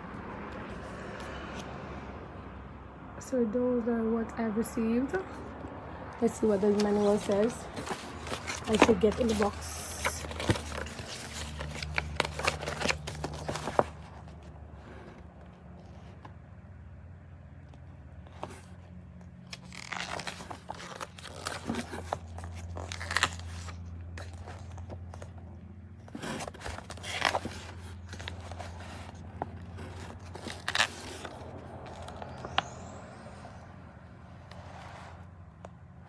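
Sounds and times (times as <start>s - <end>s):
paper rustling and crinkling: 6.2s - 16.2s, 18.2s - 25.4s, 26.0s - 33.7s.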